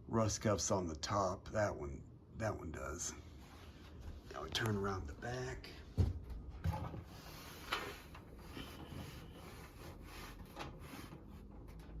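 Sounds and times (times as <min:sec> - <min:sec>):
metal fan rubbing and scraping: 0:07.0 - 0:12.0.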